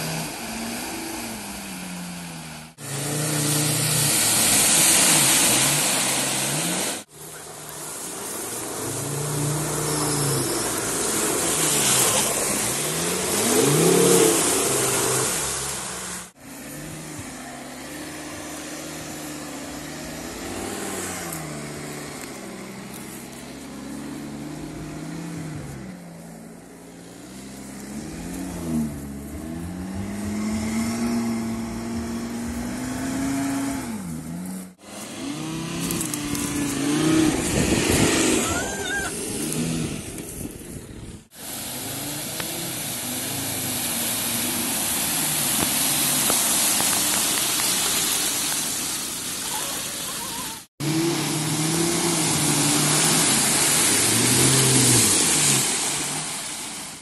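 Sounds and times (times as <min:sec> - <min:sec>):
car engine revving: 0:00.0 - 0:40.3, 0:41.2 - 0:57.0
car driving through mud puddle: 0:00.0 - 0:57.0
steady hiss: 0:41.3 - 0:50.6.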